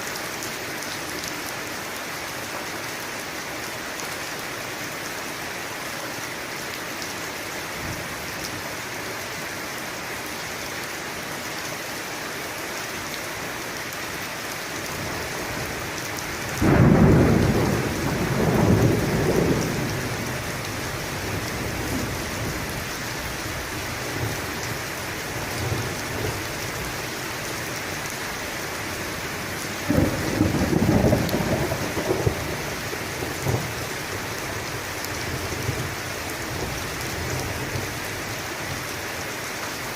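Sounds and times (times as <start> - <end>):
heavy rain: 0.0 - 39.9
thunder rumbling: 16.5 - 22.8, 29.7 - 34.2.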